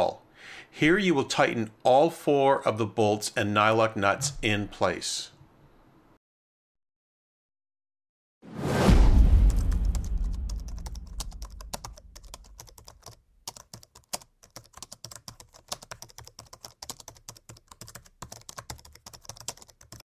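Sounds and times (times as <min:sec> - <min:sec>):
low rumble: 0:08.9 - 0:12.5.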